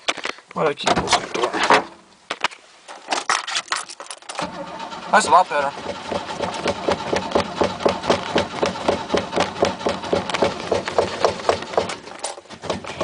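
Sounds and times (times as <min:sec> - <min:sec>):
starter cranking engine: 0:04.4 - 0:13.0.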